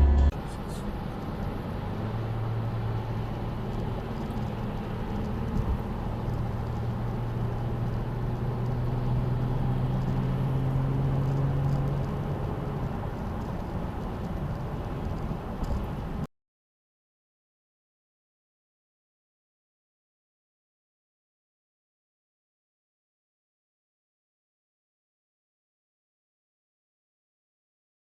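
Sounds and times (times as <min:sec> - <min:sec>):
car engine: 0:00.0 - 0:16.3
road noise: 0:00.0 - 0:16.3.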